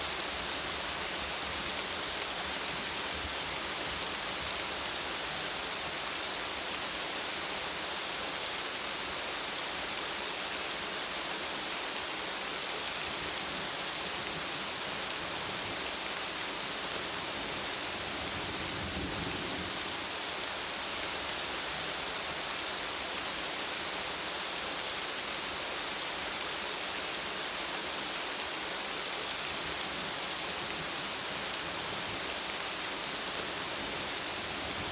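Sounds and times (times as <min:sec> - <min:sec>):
steady rain hiss: 0:00.0 - 0:34.9.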